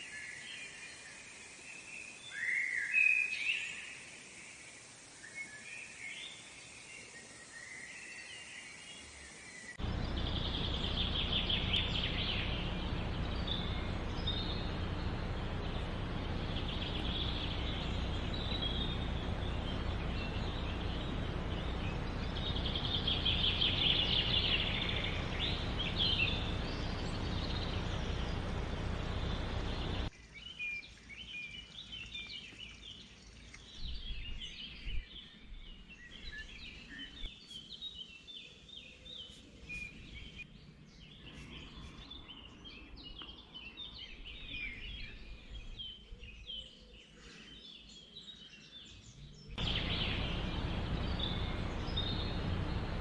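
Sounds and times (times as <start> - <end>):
birds calling in trills: 9.7 - 53.0
steady rushing noise: 49.6 - 53.0.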